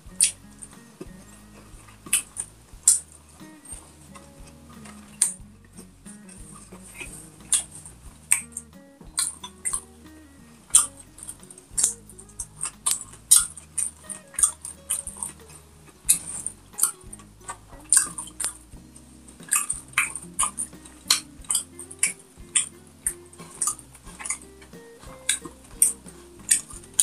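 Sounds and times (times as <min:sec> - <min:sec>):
soft background music: 0:00.0 - 0:27.0.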